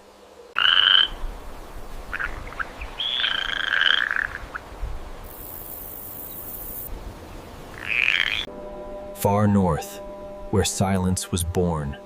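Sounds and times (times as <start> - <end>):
animal calls: 2.1 - 4.6, 7.7 - 8.5
high-pitched hiss: 5.2 - 6.9.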